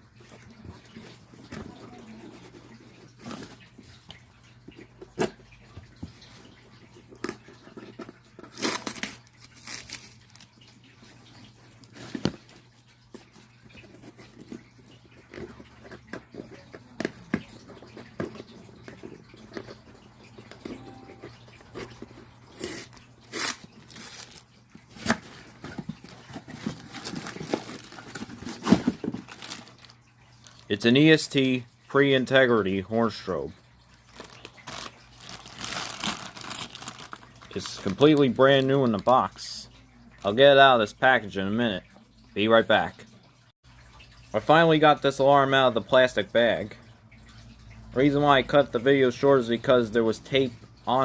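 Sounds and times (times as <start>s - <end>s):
cardboard box being handled: 25.0s - 29.8s.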